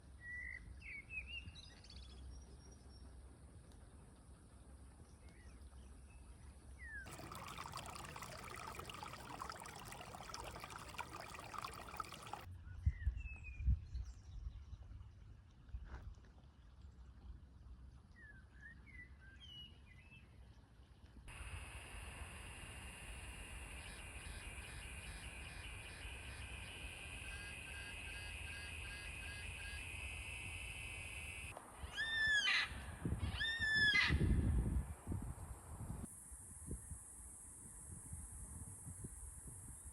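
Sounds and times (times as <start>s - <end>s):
water trickling: 7.1s - 12.5s.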